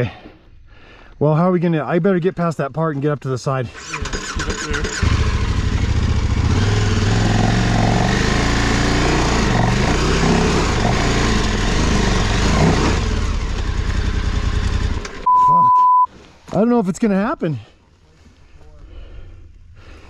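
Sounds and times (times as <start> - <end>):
motorcycle engine revving: 3.8 - 15.3.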